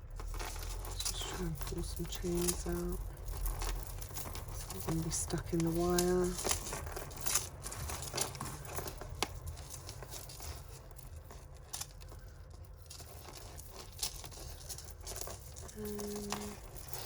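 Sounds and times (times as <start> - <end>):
jewellery chains clicking and rustling: 0.0 - 17.0.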